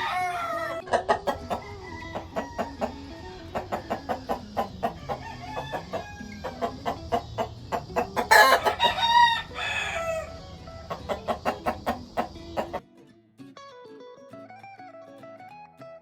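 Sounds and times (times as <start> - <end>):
chickens clucking: 0.0 - 12.8
rooster crowing: 0.0 - 12.8.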